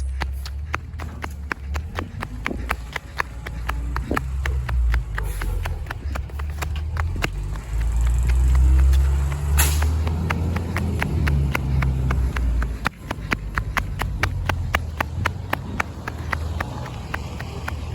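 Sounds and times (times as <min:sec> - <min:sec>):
garbage truck diesel engine: 0:00.0 - 0:17.9.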